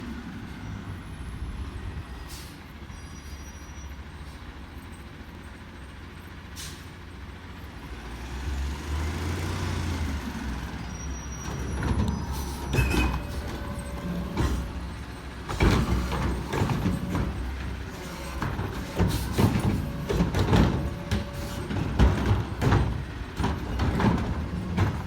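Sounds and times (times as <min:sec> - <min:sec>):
garbage truck engine rumbling: 0:00.0 - 0:25.0
air brake hisses: 0:06.6 - 0:06.9.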